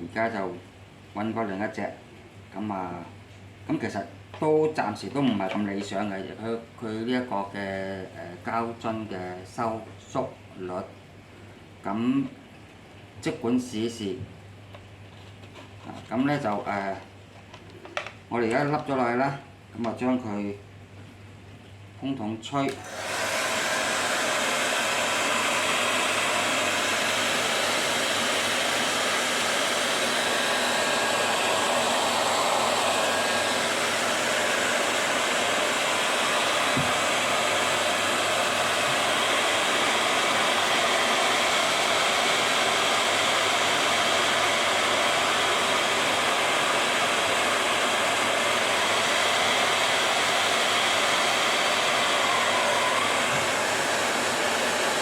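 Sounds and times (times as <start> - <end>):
hair dryer blowing: 22.7 - 55.0.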